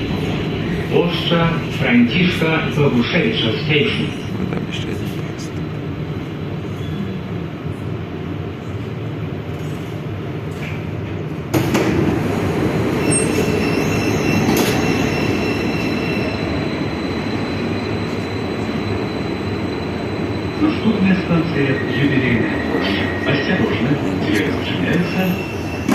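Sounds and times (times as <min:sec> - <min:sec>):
train carriage rumble: 0:00.0 - 0:25.9.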